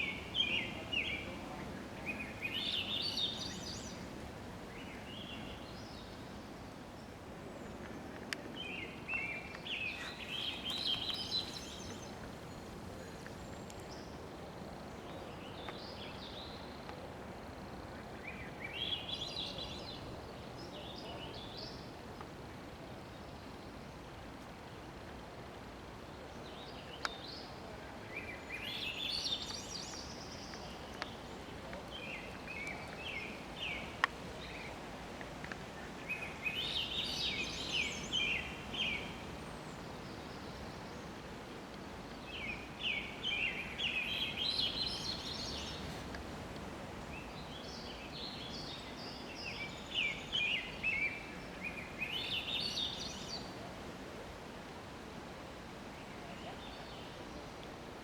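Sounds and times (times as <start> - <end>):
songbird chirping: 0.0 - 17.1, 26.6 - 53.8
steady background hiss: 0.0 - 58.0.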